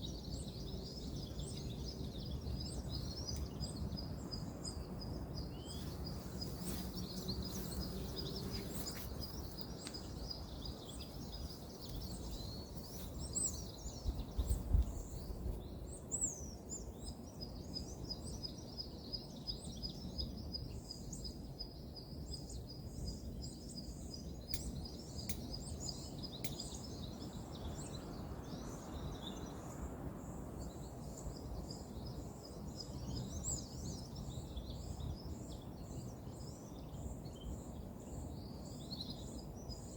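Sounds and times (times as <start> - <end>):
bird calls: 0.0 - 16.9
distant road traffic hum: 0.1 - 14.0.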